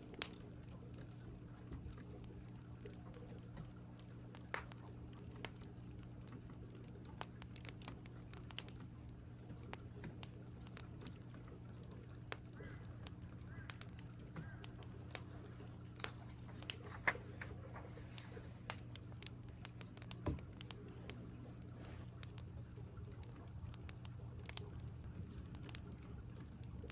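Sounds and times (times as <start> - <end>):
fire crackling: 0.0 - 26.9
steady low hum: 0.0 - 26.9
crow cawing: 12.6 - 14.8.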